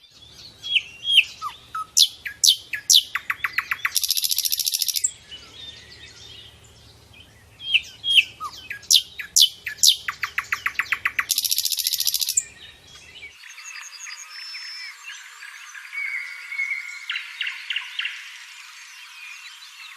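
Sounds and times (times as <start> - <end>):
faint high bird chirping: 0.0 - 19.9
bird trilling: 0.6 - 5.1, 7.6 - 12.6.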